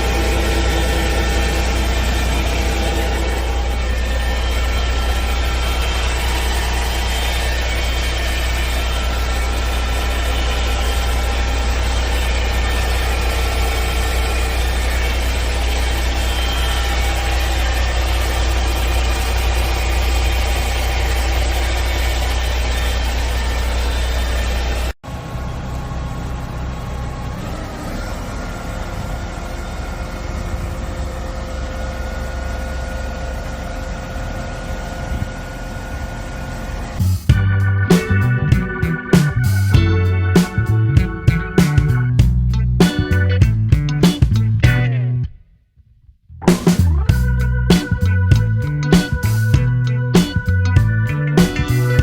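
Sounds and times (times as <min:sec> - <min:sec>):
steady higher tone: 0:00.0 - 0:22.2, 0:28.6 - 0:43.4
diesel truck engine idling: 0:00.0 - 0:45.2, 0:46.7 - 0:52.0.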